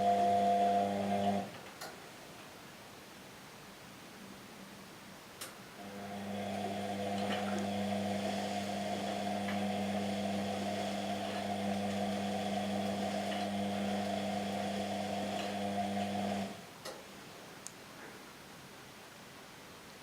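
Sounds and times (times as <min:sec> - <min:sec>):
washing machine motor humming: 0:00.0 - 0:01.5, 0:05.8 - 0:16.7.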